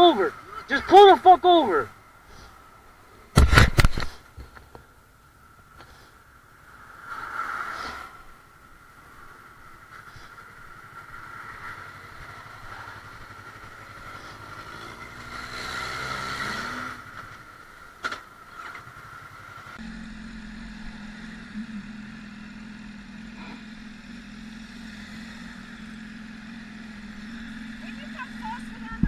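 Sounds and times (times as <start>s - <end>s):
motorcycle engine running: 9.7s - 29.0s
low engine drone: 19.0s - 29.0s.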